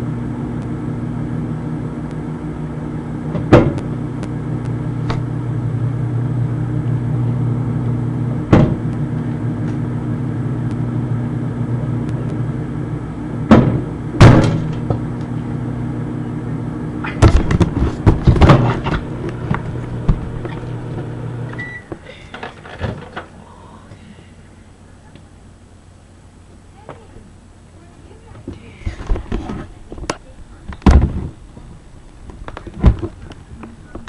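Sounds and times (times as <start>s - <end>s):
microwave oven humming: 0.0s - 34.0s
sharp pops and knocks: 3.3s - 4.3s, 8.5s - 8.9s, 13.5s - 15.0s.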